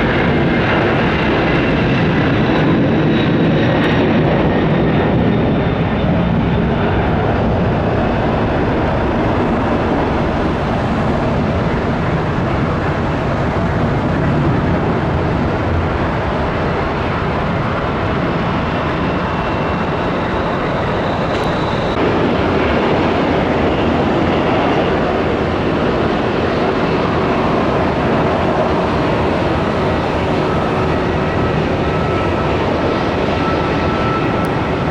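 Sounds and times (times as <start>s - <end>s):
jet engines at take-off: 0.0s - 34.9s.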